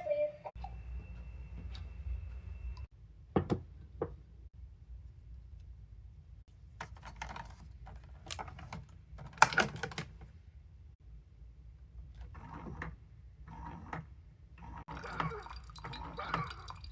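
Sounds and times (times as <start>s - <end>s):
plastic clicking and clattering: 6.8s - 10.3s.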